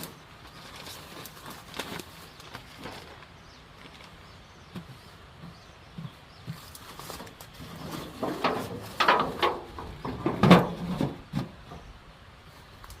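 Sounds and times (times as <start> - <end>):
wooden box knocking and scraping: 7.7 - 11.9.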